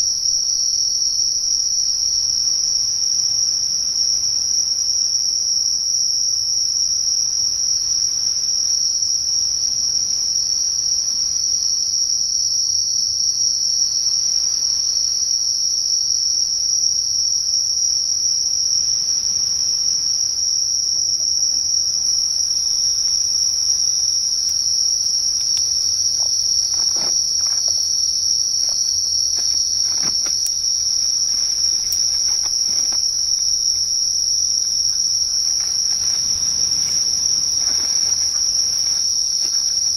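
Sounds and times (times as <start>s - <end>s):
night insect chorus: 0.0s - 39.9s
camp gear rustling and knocking: 25.4s - 33.5s, 34.6s - 39.9s.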